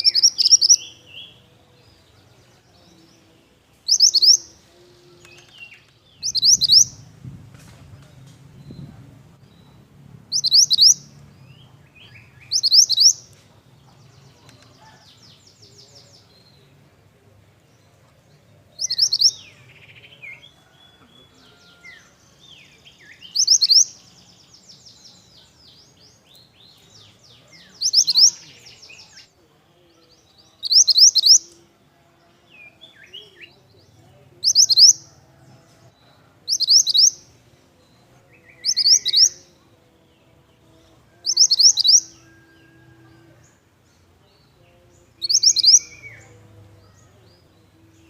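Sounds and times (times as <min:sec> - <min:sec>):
bird singing trilled phrases: 0:00.0 - 0:04.6, 0:05.2 - 0:07.0, 0:08.6 - 0:13.4, 0:18.7 - 0:20.4, 0:22.8 - 0:29.3, 0:30.4 - 0:31.6, 0:34.4 - 0:35.0, 0:36.5 - 0:37.2, 0:37.8 - 0:39.6, 0:41.2 - 0:42.4, 0:45.1 - 0:46.4
soft bird twittering: 0:00.0 - 0:07.2, 0:08.5 - 0:13.4, 0:17.6 - 0:21.0, 0:22.7 - 0:29.3, 0:30.5 - 0:31.6, 0:34.4 - 0:35.0, 0:36.5 - 0:39.6, 0:41.2 - 0:42.8, 0:45.2 - 0:46.4.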